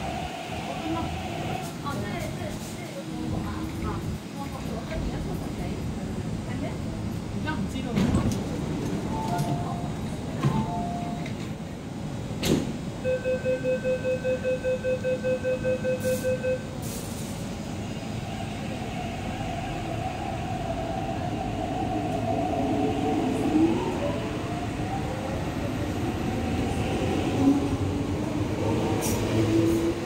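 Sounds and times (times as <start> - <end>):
train rumble: 0.0 - 13.0, 16.7 - 30.0
train doors shutting: 7.8 - 13.0, 16.0 - 30.0.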